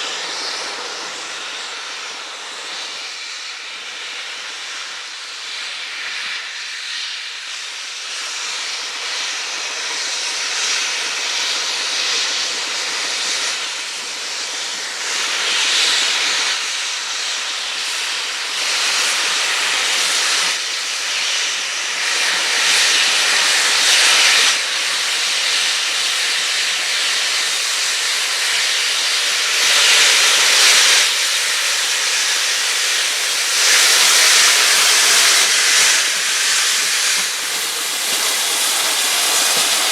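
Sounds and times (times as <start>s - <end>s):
steam locomotive hissing steam: 0.0s - 39.9s.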